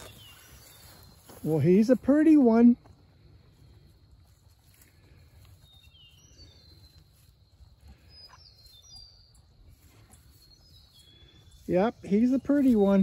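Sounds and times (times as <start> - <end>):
faint bird chirps: 0.0 - 1.6, 4.7 - 13.0.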